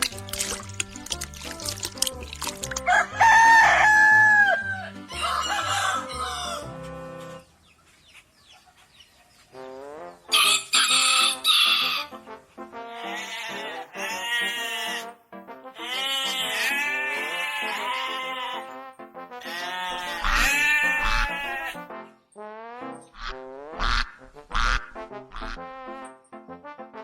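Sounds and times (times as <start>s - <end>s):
background music with bass: 0.0s - 7.4s
rooster crowing: 2.8s - 7.1s, 10.3s - 12.1s, 19.4s - 21.8s.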